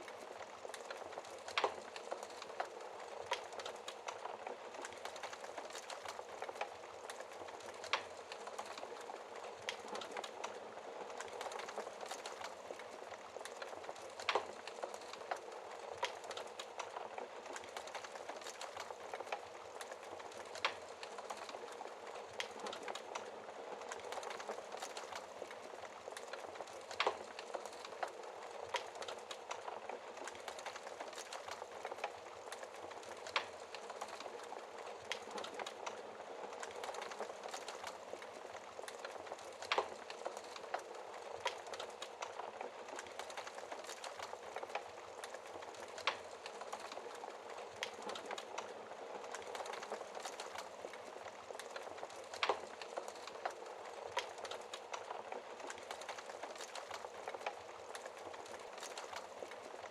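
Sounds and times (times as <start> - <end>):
fire crackling in a fireplace: 0.0 - 59.9.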